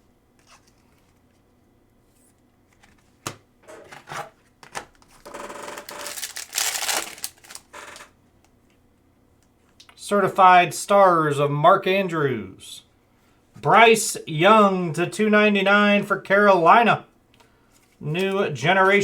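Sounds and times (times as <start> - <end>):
packaging rustling and crinkling: 2.7 - 8.1.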